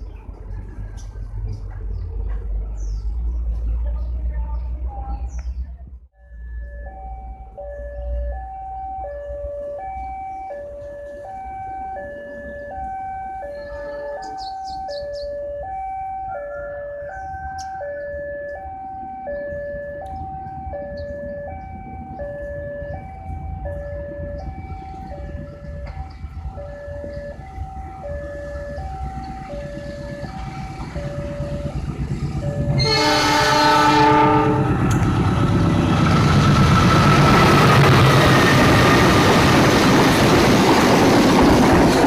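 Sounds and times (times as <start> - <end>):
level crossing two-tone alarm: 6.2 - 34.4.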